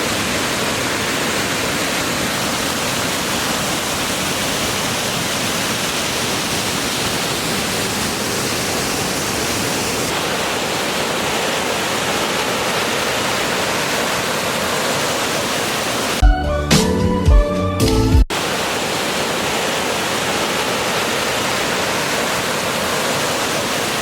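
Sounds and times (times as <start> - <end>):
waterfall roaring: 0.0 - 16.2, 18.3 - 24.0
music: 16.2 - 18.3.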